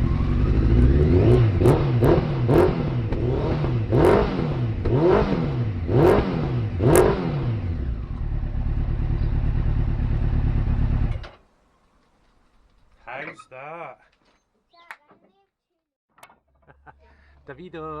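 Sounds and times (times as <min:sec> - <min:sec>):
motorcycle engine revving: 0:00.0 - 0:11.4
motorcycle engine idling: 0:07.7 - 0:11.2.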